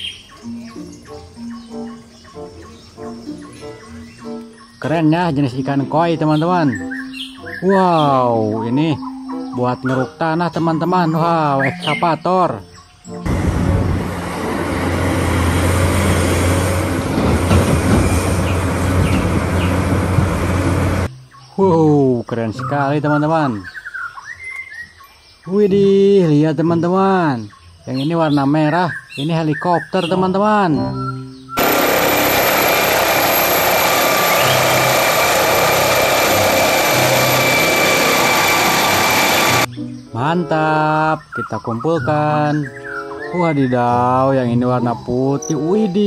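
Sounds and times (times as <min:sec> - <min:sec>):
excavator engine and hydraulics drone: 0:13.3 - 0:21.1, 0:31.6 - 0:39.7
spinning rotor noise: 0:31.6 - 0:39.7.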